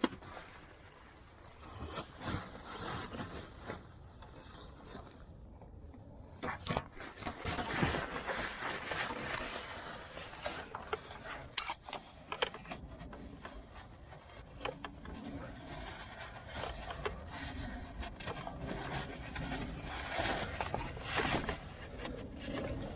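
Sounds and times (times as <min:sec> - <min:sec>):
rustling scraping noise: 0:00.1 - 0:05.4, 0:06.4 - 0:22.9.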